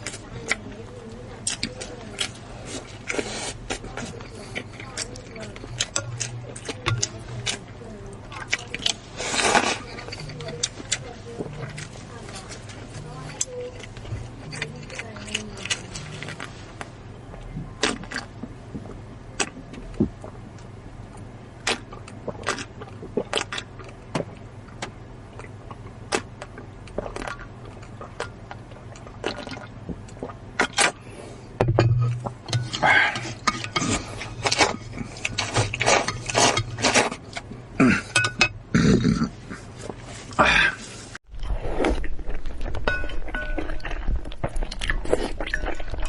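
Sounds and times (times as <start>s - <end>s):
slurping: 0.0s - 16.8s, 32.2s - 42.7s.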